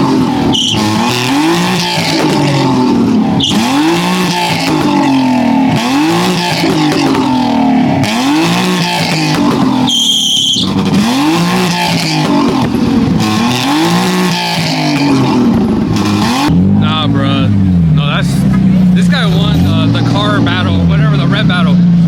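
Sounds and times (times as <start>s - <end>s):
tires squealing on pavement: 0.0s - 17.2s
car engine revving: 0.0s - 22.0s.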